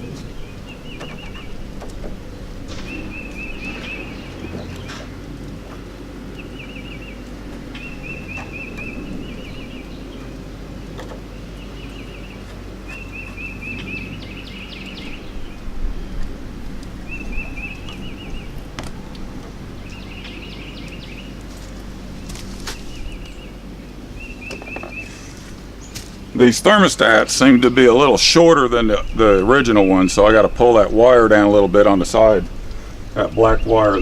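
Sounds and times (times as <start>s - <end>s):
sharp clicks and knocks: 0.0s - 6.5s, 7.2s - 14.1s
bird chirping in rapid trills: 0.0s - 34.0s
steady low hum: 0.0s - 34.0s.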